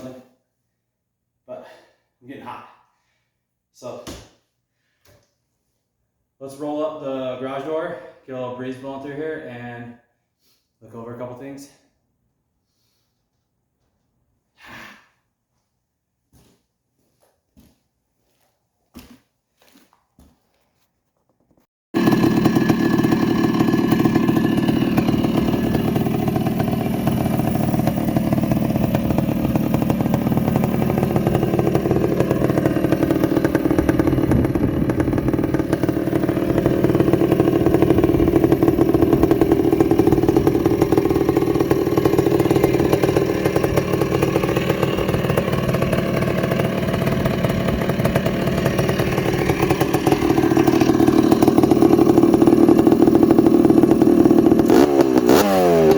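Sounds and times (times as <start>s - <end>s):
two-stroke engine running: 22.0s - 55.9s.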